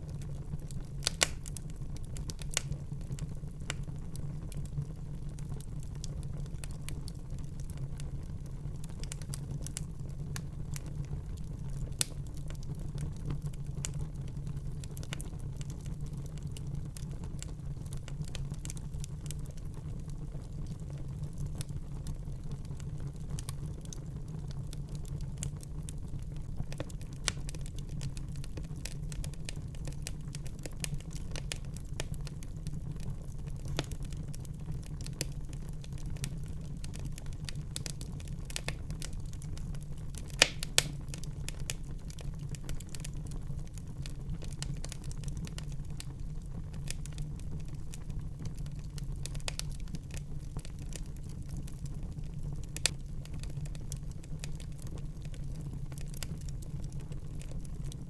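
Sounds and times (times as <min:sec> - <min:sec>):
low rumble of flames: 0:00.0 - 0:58.0
wood fire crackling: 0:00.0 - 0:58.0
loud fire pops: 0:01.0 - 0:01.6, 0:40.2 - 0:41.8.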